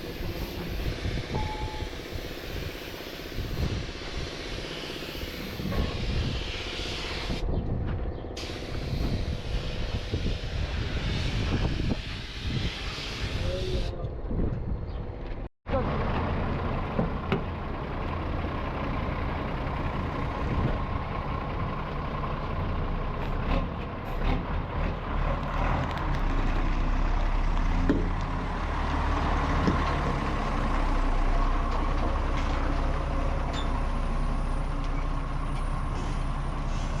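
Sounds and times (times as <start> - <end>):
truck engine running: 15.1 - 37.0.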